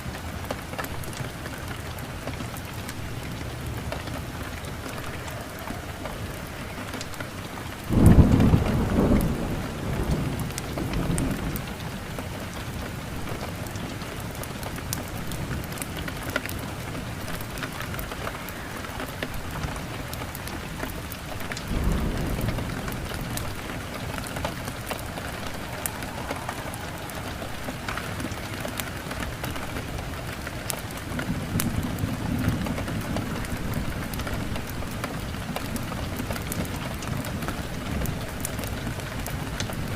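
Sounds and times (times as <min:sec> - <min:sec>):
steady rain: 0:00.0 - 0:39.9
rolls of thunder: 0:04.8 - 0:12.0, 0:21.4 - 0:30.4
thunderclap: 0:06.0 - 0:12.6, 0:20.6 - 0:39.9.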